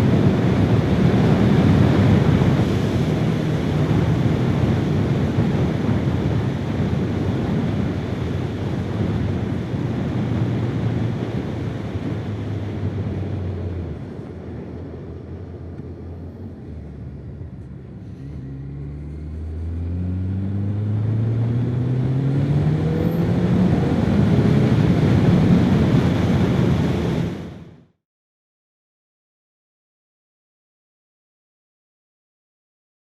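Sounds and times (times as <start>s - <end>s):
motorcycle engine accelerating: 0.0s - 27.9s.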